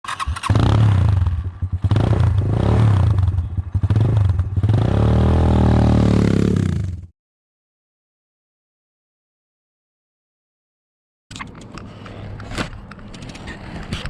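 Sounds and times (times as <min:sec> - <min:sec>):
motorcycle engine revving: 0:00.0 - 0:07.1.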